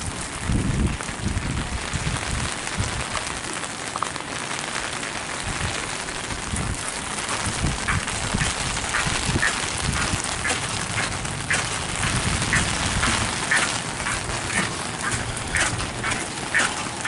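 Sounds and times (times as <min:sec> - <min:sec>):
heavy rain on water: 0:00.0 - 0:17.0
wind rumbling on microphone: 0:00.0 - 0:17.0.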